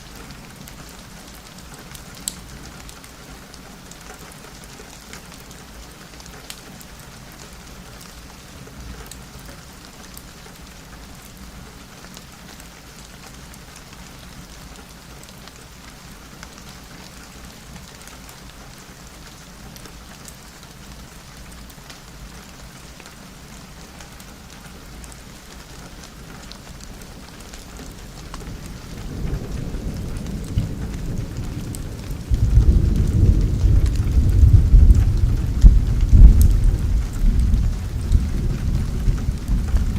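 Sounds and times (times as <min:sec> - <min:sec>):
steady rain falling: 0:00.0 - 0:39.9
thunder rumbling: 0:27.8 - 0:39.9.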